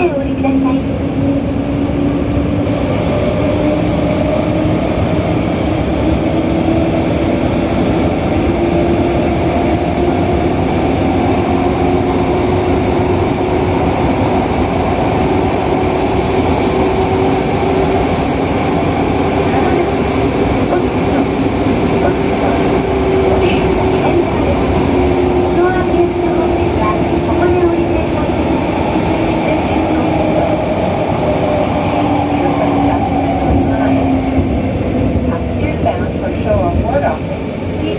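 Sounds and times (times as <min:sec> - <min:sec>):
train wheels rumbling: 0:00.0 - 0:37.9.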